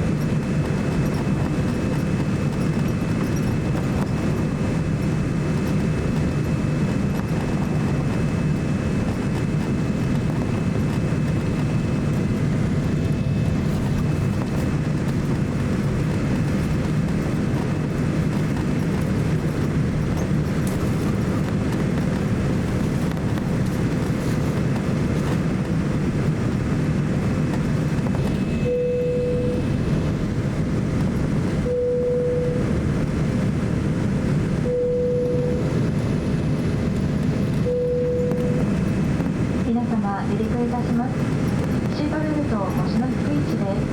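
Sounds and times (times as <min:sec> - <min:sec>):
airplane cabin noise: 0:00.0 - 0:43.9
short beeps: 0:28.3 - 0:29.7, 0:31.6 - 0:32.7, 0:34.6 - 0:35.7, 0:37.6 - 0:38.7.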